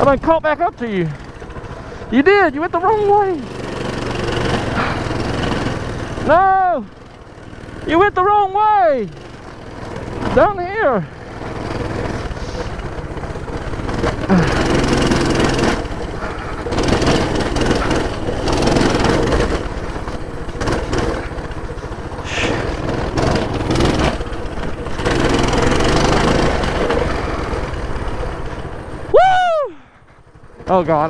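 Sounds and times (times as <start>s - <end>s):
minibike engine revving: 0.0s - 31.0s.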